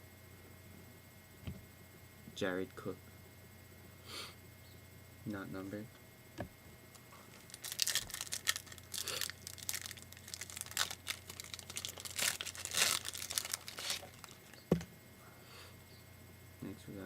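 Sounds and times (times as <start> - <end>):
card packaging crinkling: 7.2 - 14.8.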